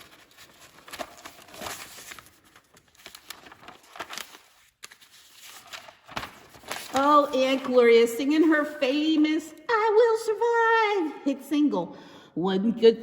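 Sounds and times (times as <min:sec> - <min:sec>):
rustling and crinkling handling: 0:00.0 - 0:09.2.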